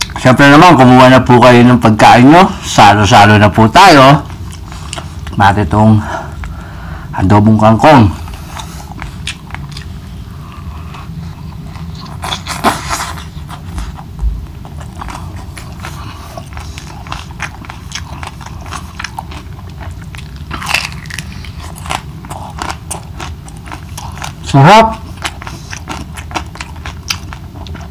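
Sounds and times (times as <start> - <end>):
person chewing crunchy food: 4.2 - 5.7, 8.1 - 27.9.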